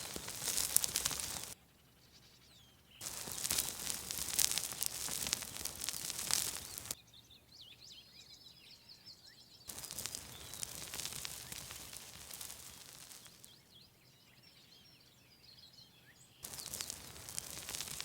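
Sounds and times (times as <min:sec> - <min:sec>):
dense crackling noise: 0:00.0 - 0:01.6, 0:03.0 - 0:07.0, 0:09.7 - 0:13.5, 0:16.4 - 0:18.0
faint bird chirps: 0:00.0 - 0:05.3, 0:06.0 - 0:18.0
songbirds chirping and trilling: 0:00.0 - 0:18.0.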